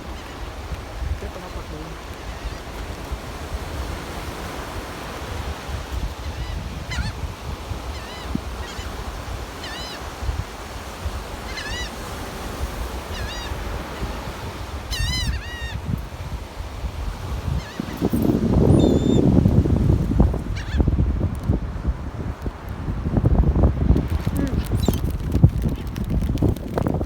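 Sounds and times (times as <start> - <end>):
surf rumbling: 0.0 - 27.0
seagulls squawking: 6.2 - 7.2, 7.9 - 10.1, 11.4 - 12.0, 13.0 - 14.2, 14.9 - 15.9, 17.5 - 19.2, 20.6 - 20.8.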